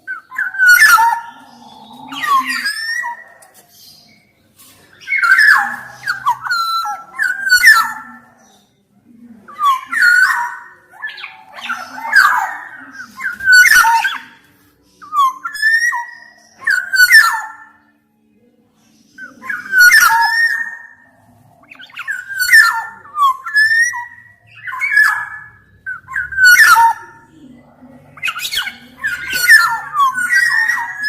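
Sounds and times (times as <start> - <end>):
oriole singing fluty whistles: 15.0 - 17.8, 19.2 - 21.0, 21.7 - 27.1, 28.2 - 31.0.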